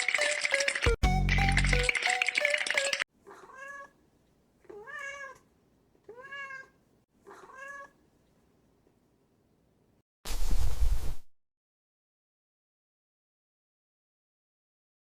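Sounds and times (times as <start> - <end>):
background music: 0.0 - 3.0
cat meowing: 3.2 - 4.0, 4.7 - 5.5, 6.1 - 8.0.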